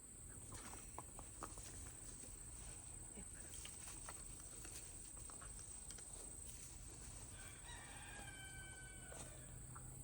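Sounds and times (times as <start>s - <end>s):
distant rooster crowing: 7.3s - 9.6s.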